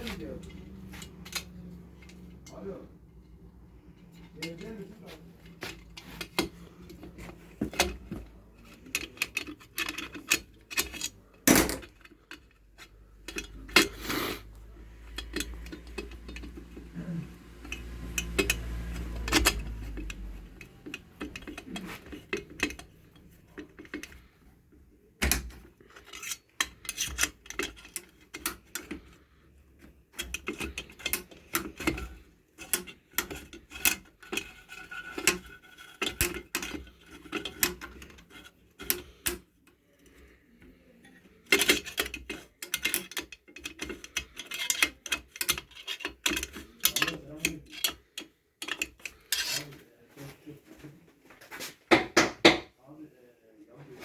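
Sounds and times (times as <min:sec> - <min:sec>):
metal tools clinking: 0:00.0 - 0:24.3, 0:25.8 - 0:29.2, 0:41.0 - 0:49.8.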